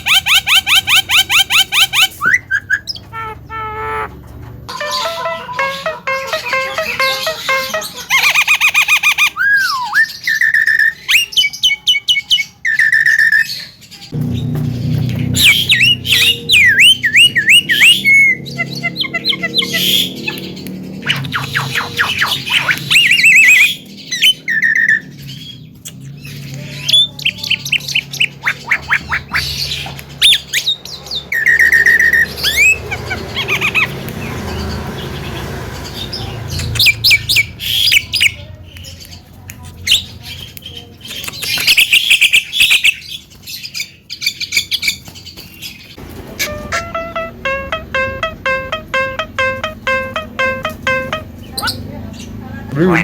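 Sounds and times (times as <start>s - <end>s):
bird singing varied song: 4.7s - 53.0s.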